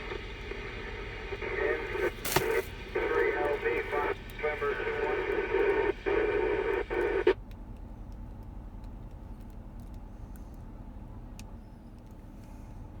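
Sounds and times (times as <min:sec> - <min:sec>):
distorted radio transmission: 0:00.0 - 0:07.4
vehicle rumble in truck cab: 0:06.6 - 0:13.0.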